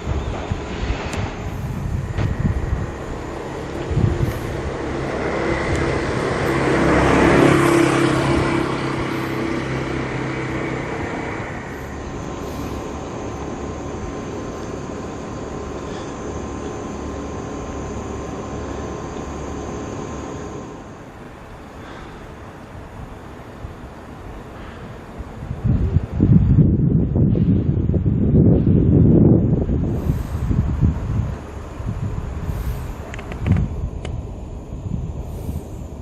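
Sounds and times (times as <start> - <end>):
vehicle passing by: 0.0 - 21.0
steady background hum: 0.0 - 36.0.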